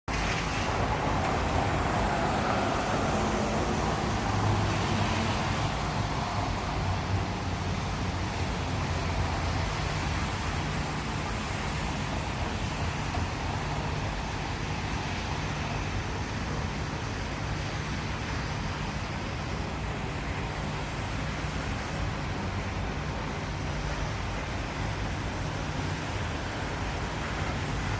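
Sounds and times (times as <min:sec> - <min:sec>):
road traffic humming: 0:00.1 - 0:27.9
tyres on wet road: 0:00.1 - 0:27.9
vehicle passing by: 0:00.2 - 0:09.1.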